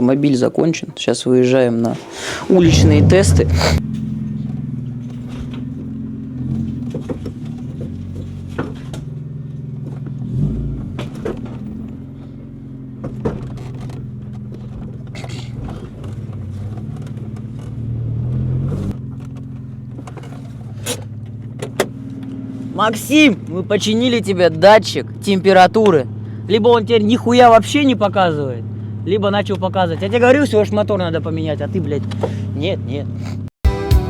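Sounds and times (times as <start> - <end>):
car engine running: 2.2 - 33.4.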